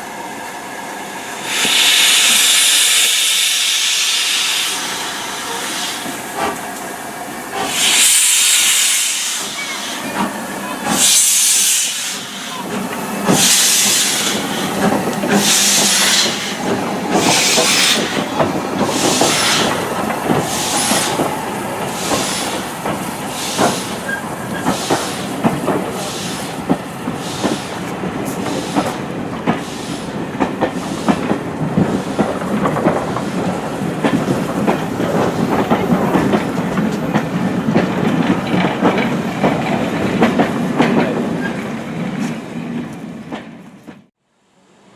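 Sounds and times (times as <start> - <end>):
steam locomotive exhaust beats: 1.4 - 44.1
train wheels clicking over rail joints: 1.4 - 44.1.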